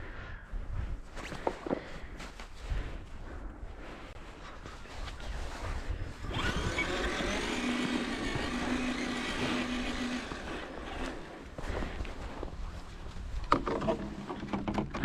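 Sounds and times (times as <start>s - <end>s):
electric toy truck motor whine: 6.3s - 11.0s.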